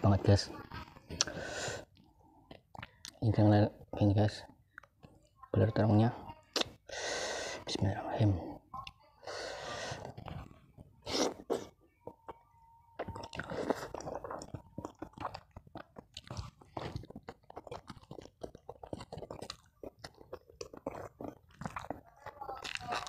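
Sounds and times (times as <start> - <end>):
close chewing mouth noises: 0.1 - 3.4, 9.6 - 23.0.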